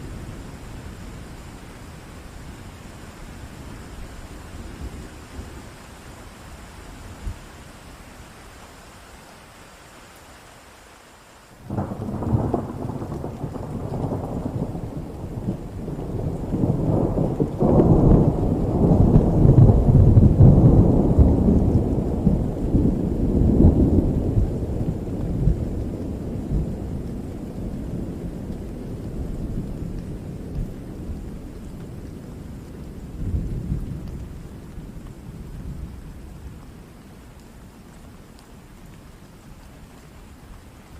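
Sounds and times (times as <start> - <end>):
steady rain: 0.0 - 40.9
rolling thunder: 11.7 - 36.6.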